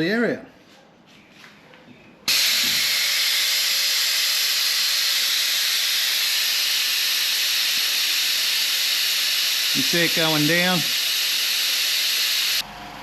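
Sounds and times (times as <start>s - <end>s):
vacuum brake bleeder hissing: 2.3s - 12.6s.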